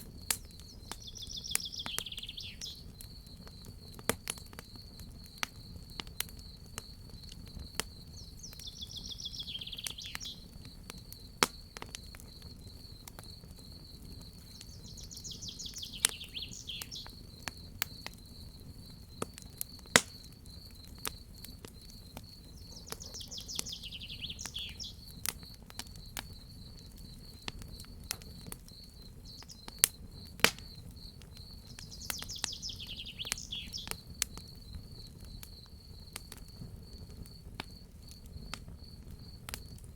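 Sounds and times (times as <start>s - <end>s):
cricket trill: 0.0s - 39.9s
fire crackling and popping: 0.0s - 39.9s
bird singing falling phrase: 1.0s - 2.8s, 8.4s - 10.4s, 14.6s - 17.1s, 22.6s - 25.0s, 31.8s - 33.9s.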